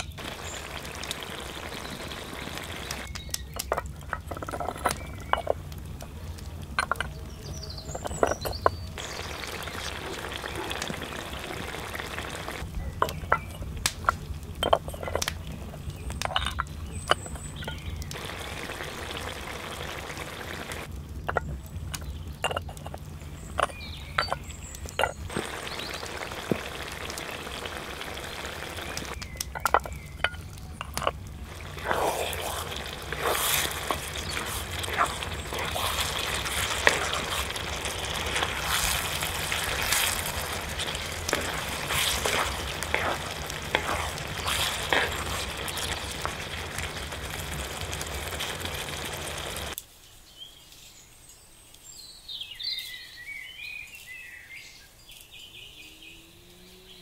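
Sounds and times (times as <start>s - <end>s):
meat sizzling on griddle: 0.0s - 3.1s, 9.0s - 12.6s, 18.2s - 20.9s, 25.3s - 29.2s, 31.4s - 49.8s
utensil scraping iron: 28.9s - 47.6s.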